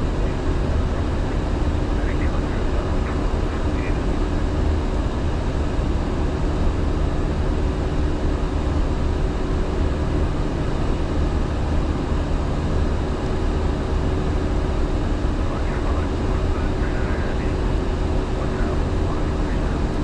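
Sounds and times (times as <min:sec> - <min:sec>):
low engine drone: 0:00.0 - 0:20.0.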